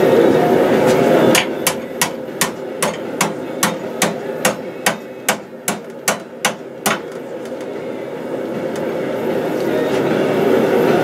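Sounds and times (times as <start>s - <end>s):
hammer striking steel on anvil: 1.3s - 7.2s.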